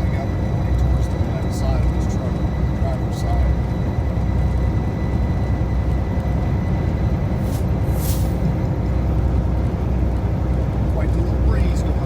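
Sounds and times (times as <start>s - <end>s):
truck engine rumble: 0.0s - 12.0s
short high hisses: 7.4s - 8.4s.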